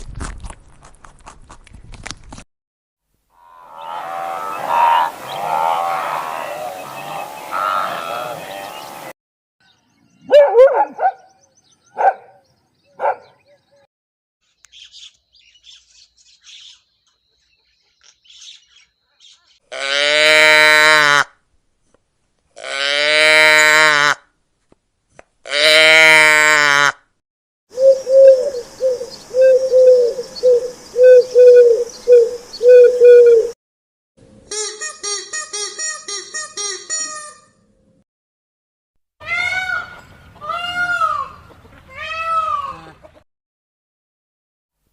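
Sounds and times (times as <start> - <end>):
animal pitched cries: 3.4 - 8.7
faint high bird chirps: 14.5 - 19.6
pigeon cooing: 27.7 - 33.6.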